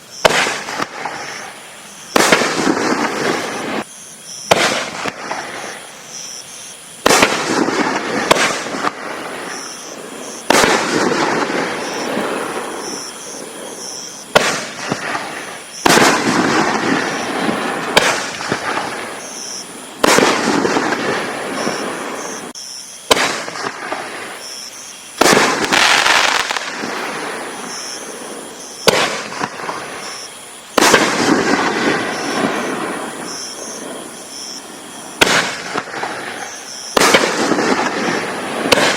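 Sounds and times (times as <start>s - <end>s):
firework crackle: 0.0s - 38.9s
firework shells firing: 0.2s - 1.5s, 2.1s - 3.8s, 4.5s - 5.6s, 7.0s - 13.2s, 14.2s - 19.2s, 20.0s - 22.5s, 23.1s - 24.2s, 25.2s - 27.0s, 28.8s - 30.1s, 30.8s - 33.9s, 35.2s - 38.9s.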